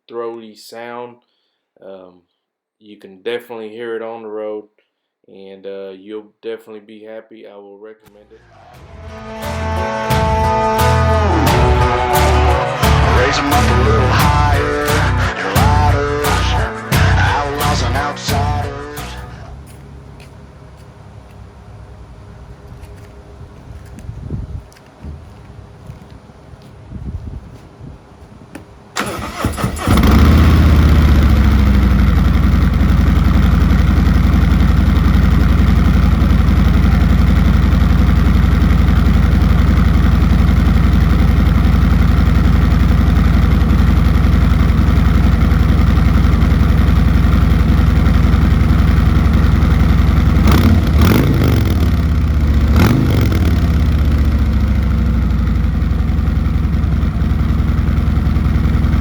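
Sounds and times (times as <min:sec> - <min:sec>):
motorcycle engine idling: 0:10.3 - 0:24.8, 0:28.6 - 0:59.0
motorcycle throttle blips: 0:19.2 - 0:59.0.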